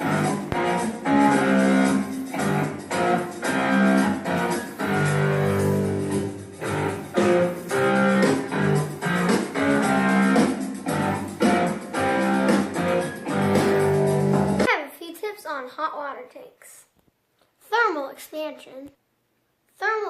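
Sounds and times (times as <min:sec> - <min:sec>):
guitar chords riff: 0:00.0 - 0:14.7.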